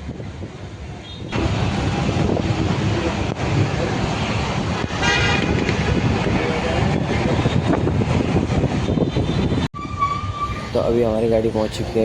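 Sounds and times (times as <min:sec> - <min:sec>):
road traffic noise: 0:00.0 - 0:12.0
vehicle horn honking: 0:04.9 - 0:05.9.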